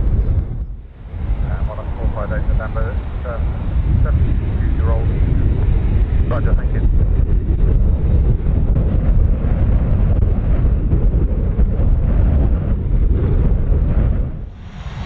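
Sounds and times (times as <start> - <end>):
jet airliner engines rumbling: 0.0 - 15.0.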